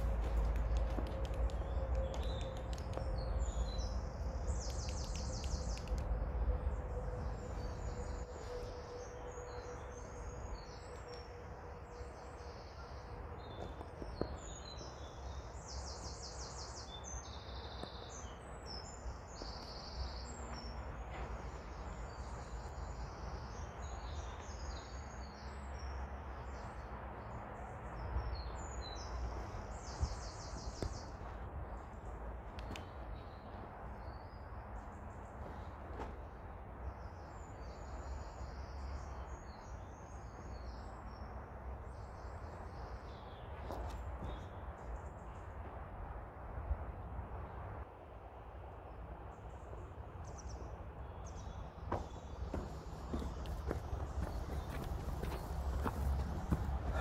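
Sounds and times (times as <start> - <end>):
birds singing: 0.0 - 25.9, 49.6 - 57.0.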